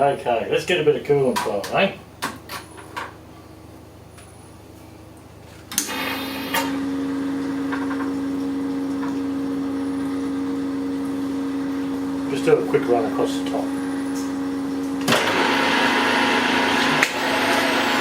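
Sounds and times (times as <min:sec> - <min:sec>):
milling machine humming: 0:05.7 - 0:18.0.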